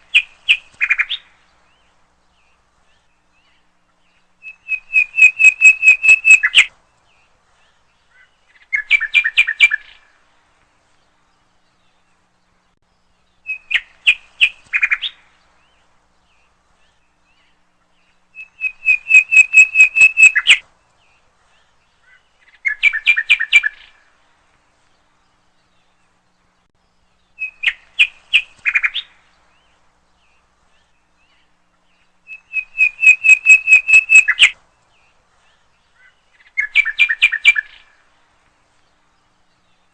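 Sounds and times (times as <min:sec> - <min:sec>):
songbird trilling: 0:04.4 - 0:06.7, 0:18.4 - 0:20.6, 0:22.0 - 0:24.0, 0:32.0 - 0:34.6, 0:35.9 - 0:38.0.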